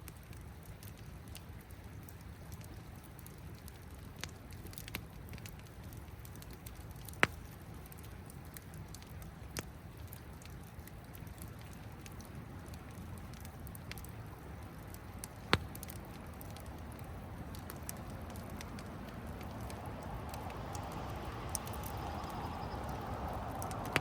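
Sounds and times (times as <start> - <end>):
campfire crackling and popping: 0.0 - 24.0
river water rushing: 16.0 - 24.0.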